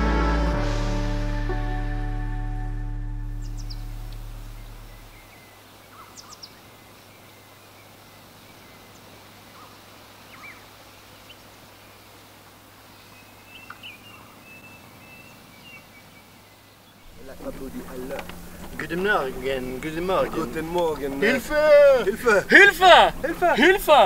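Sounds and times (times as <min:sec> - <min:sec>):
background music: 0:00.0 - 0:05.2, 0:17.1 - 0:24.0
steady outdoor hiss: 0:00.0 - 0:24.0
high bird chirps: 0:03.3 - 0:06.6
thin warbling bird call: 0:03.4 - 0:07.0.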